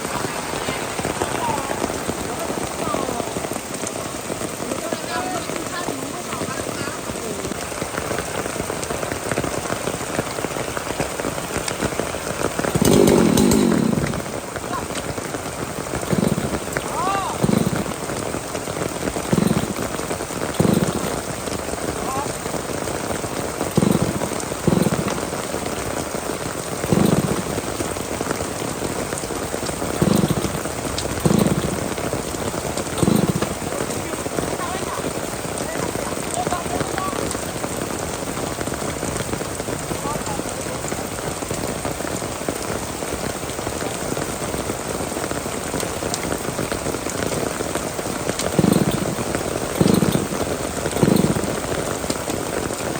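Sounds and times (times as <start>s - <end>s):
low rumbling bursts: 0.0s - 7.6s, 11.7s - 22.5s, 23.7s - 25.8s
heavy rain falling: 0.0s - 52.9s.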